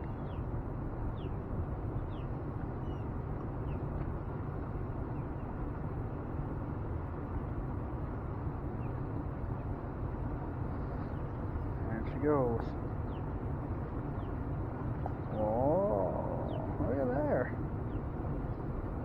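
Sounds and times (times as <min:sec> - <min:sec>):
low outdoor rumble: 0:00.0 - 0:19.0
faint bird chirps: 0:15.2 - 0:18.0.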